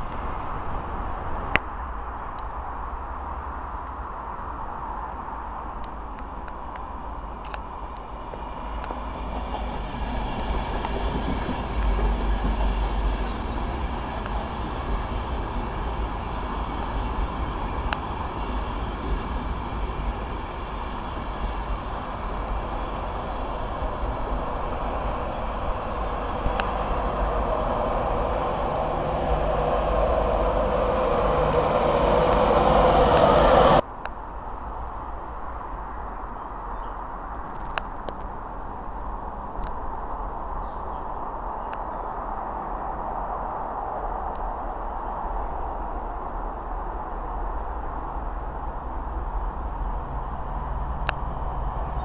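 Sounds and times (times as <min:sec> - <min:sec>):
train wheels rumbling on rail: 0:05.9 - 0:33.9, 0:43.3 - 0:52.0
sharp clicks of wheels: 0:31.5 - 0:33.3.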